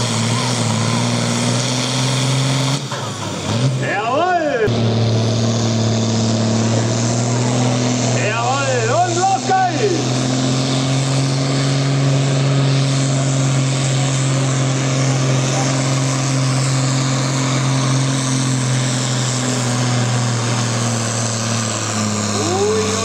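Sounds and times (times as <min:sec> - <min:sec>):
tractor diesel engine droning: 0:00.0 - 0:23.0.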